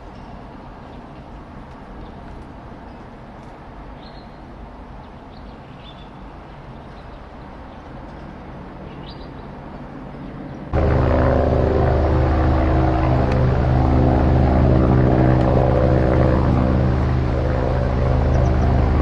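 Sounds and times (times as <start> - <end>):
helicopter flying low overhead: 9.5 - 19.0
distant aircraft rumble: 10.8 - 19.0.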